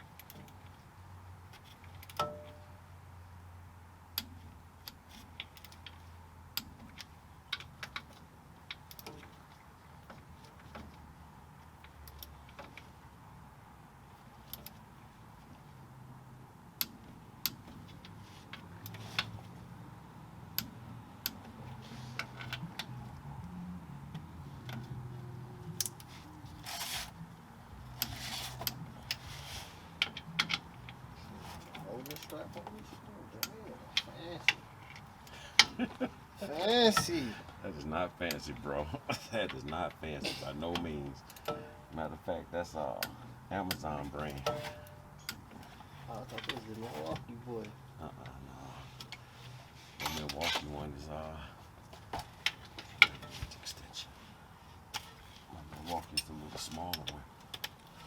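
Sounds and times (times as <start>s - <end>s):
hand tools clinking on metal: 39.1s - 42.0s, 43.0s - 47.2s, 50.0s - 50.8s.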